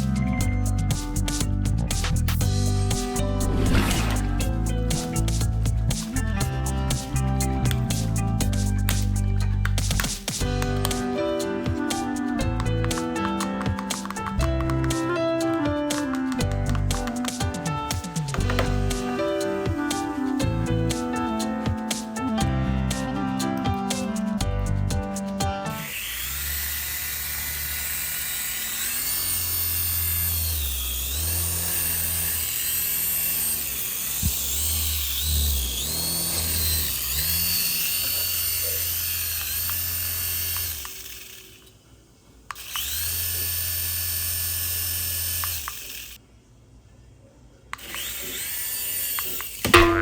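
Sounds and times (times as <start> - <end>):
toy helicopter motors whirring: 25.8 - 41.8, 42.5 - 46.2, 47.8 - 49.8.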